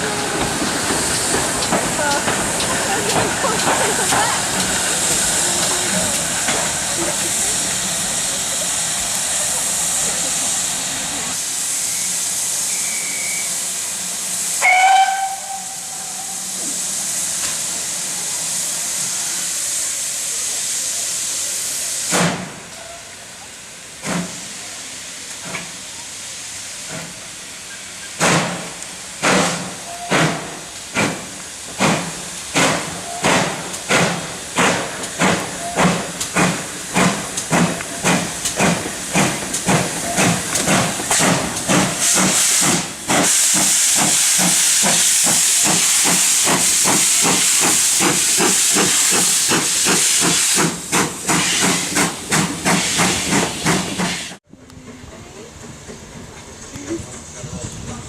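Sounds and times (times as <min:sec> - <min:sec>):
steam locomotive exhaust beats: 0:00.0 - 0:22.7, 0:28.1 - 0:58.0
steam hissing: 0:00.0 - 0:54.4
steam locomotive whistle: 0:11.8 - 0:13.7, 0:14.5 - 0:16.6.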